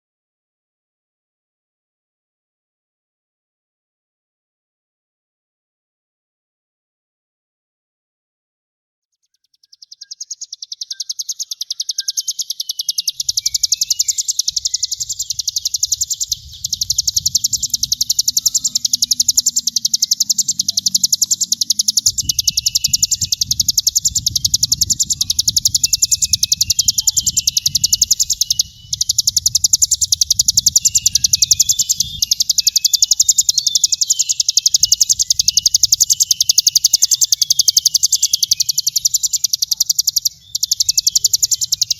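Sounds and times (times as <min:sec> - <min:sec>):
bird buzzing trill: 0:10.0 - 0:41.9.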